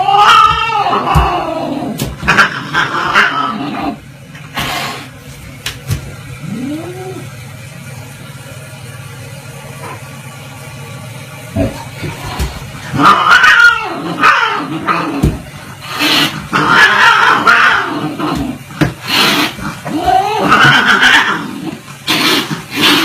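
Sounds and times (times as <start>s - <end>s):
cats yowling: 0.0s - 4.0s, 12.9s - 18.6s, 19.2s - 21.8s.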